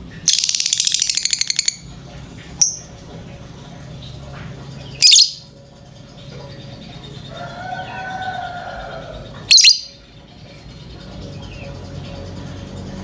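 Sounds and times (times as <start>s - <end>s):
lovebird shrill calls: 0.3s - 1.8s, 2.6s - 2.9s, 5.0s - 5.5s, 7.4s - 10.0s
faint held bird tone: 3.8s - 13.0s.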